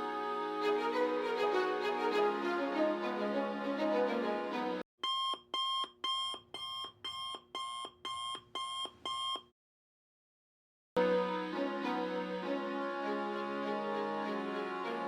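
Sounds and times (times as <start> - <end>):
background music: 0.0 - 4.8, 11.0 - 15.0
electronic alarm beeps: 5.0 - 9.5.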